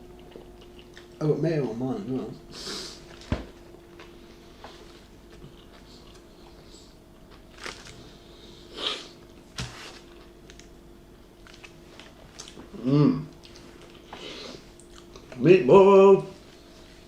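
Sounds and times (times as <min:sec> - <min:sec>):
people chewing sandwiches: 0:00.0 - 0:01.2, 0:02.6 - 0:10.7, 0:11.3 - 0:15.4
faint steady hum: 0:00.0 - 0:17.0.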